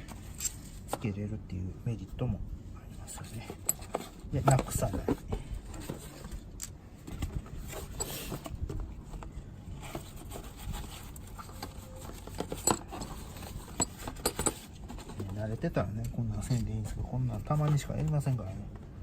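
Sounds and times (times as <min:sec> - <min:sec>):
metal bolts and tools clinking: 0:11.5 - 0:14.7.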